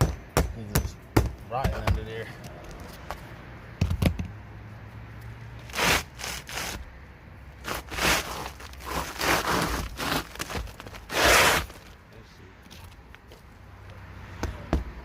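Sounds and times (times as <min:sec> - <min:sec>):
scraping on asphalt roofing: 0:05.6 - 0:06.9, 0:07.6 - 0:12.0.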